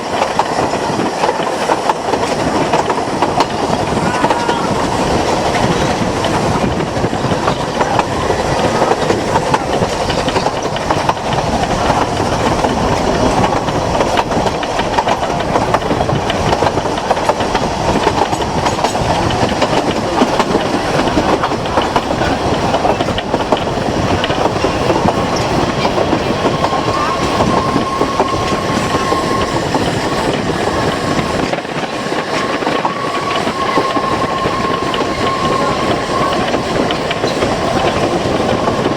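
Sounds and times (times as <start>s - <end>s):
train rumbling on rails: 0.0s - 38.9s
wheels clicking on track: 0.0s - 38.9s
high wheel squeal: 24.8s - 38.9s.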